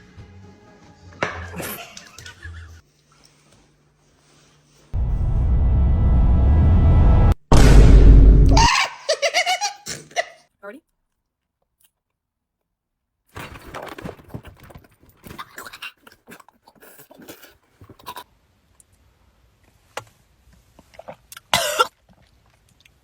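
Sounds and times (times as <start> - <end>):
loud vocal outburst: 8.5 - 9.1
person chewing: 15.3 - 18.2
person coughing: 21.6 - 21.9.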